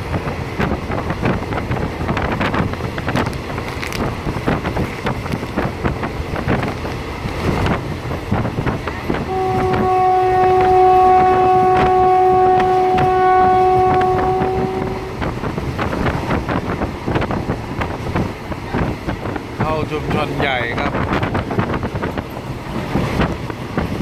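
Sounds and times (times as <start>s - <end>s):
railcar clattering on rails: 0.0s - 24.0s
wind rushing: 0.0s - 24.0s
train horn blast: 9.1s - 15.3s.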